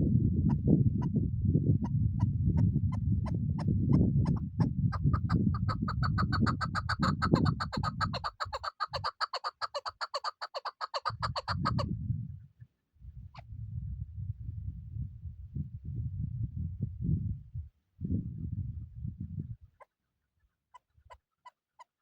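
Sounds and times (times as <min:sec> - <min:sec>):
low rumble: 0:00.0 - 0:05.6, 0:11.8 - 0:19.6
partridge clucking call: 0:04.3 - 0:11.8.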